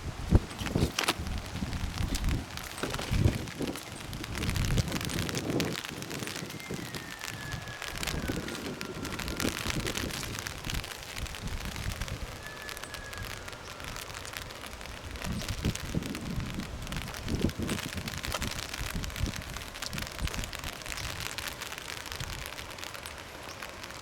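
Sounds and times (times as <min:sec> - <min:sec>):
crackling rustling noise: 0:00.0 - 0:24.0
distant animal whistled calls: 0:12.3 - 0:14.1.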